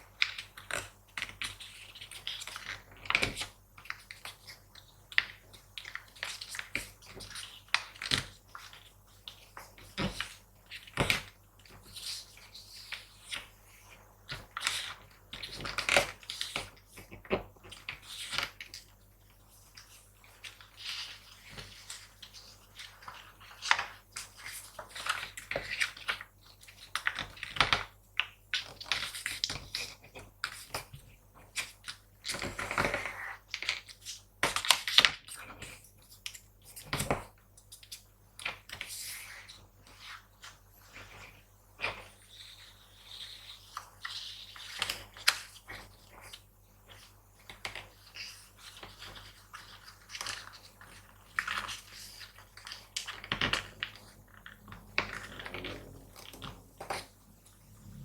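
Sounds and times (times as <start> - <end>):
paper being folded and creased: 19.5 - 27.6, 37.8 - 58.0.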